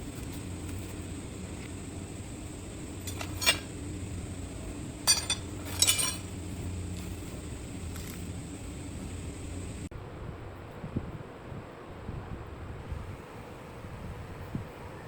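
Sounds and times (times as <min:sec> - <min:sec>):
low background hum: 0:00.0 - 0:15.0
metal pieces clinking: 0:03.0 - 0:03.8, 0:05.0 - 0:07.2.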